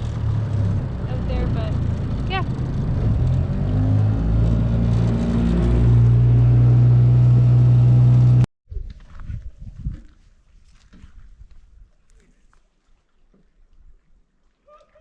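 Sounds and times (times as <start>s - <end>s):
outboard motor running: 0.0s - 8.5s.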